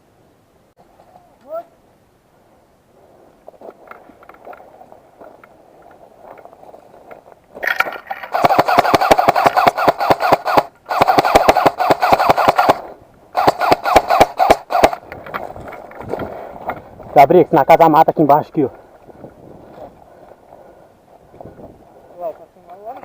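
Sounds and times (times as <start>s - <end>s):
airsoft gun firing full auto: 8.3s - 15.0s.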